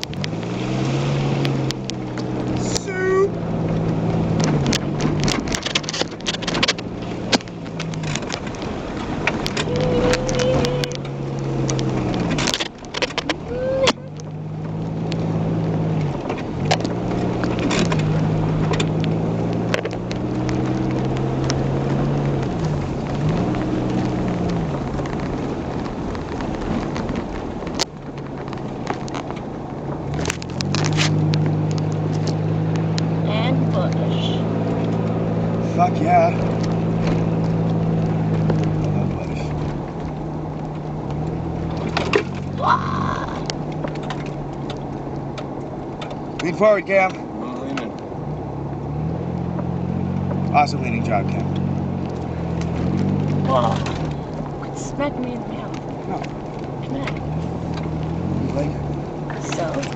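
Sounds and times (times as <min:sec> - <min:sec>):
car engine revving: 0:00.0 - 0:59.9
knocks and rattles of car jolting: 0:03.6 - 0:10.4, 0:11.7 - 0:13.5, 0:39.4 - 0:47.9.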